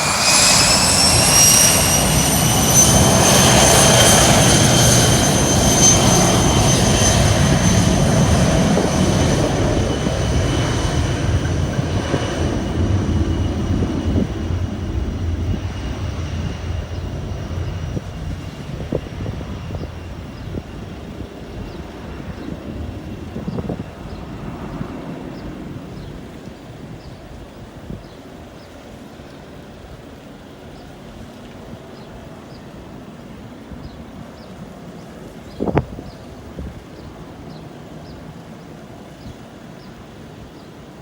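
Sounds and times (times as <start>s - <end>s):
heavy jet rumble: 0.0s - 28.4s
jet engines whining: 0.0s - 41.0s.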